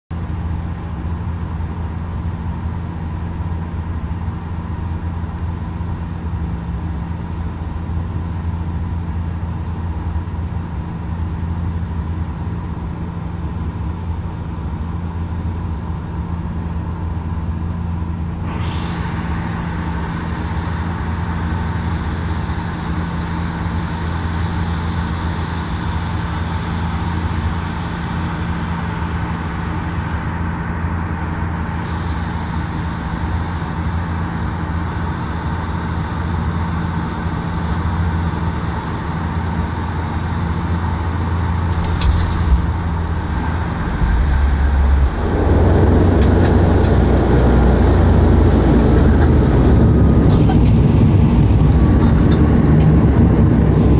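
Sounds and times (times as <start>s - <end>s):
rough rumbling roar on runway: 0.2s - 53.9s
turboprop cabin drone: 0.2s - 53.9s
sharp landing bump: 41.6s - 47.9s.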